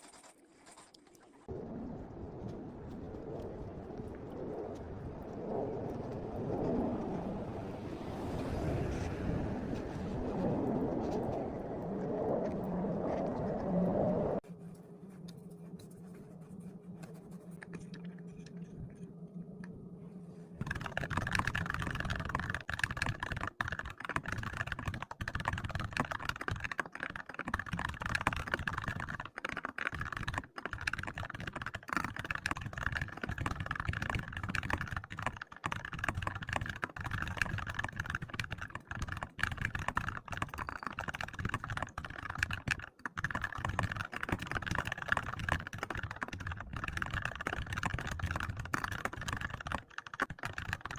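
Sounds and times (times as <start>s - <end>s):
typing on a keyboard: 20.6s - 50.9s.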